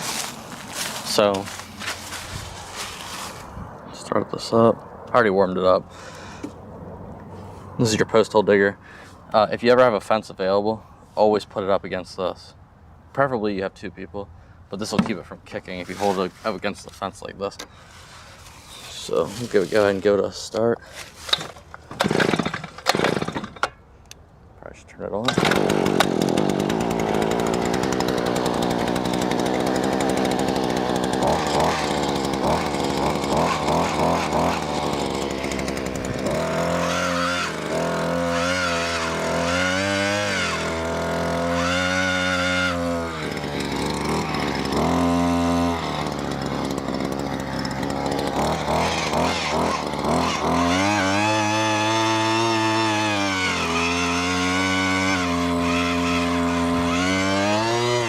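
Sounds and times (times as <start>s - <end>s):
earth auger engine running: 21.0s - 23.8s, 25.2s - 58.0s.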